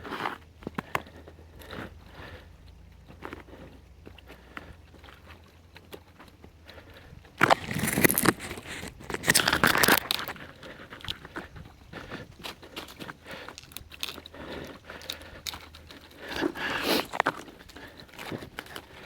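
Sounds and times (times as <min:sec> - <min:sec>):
twigs rustling and snapping: 0:04.9 - 0:19.0.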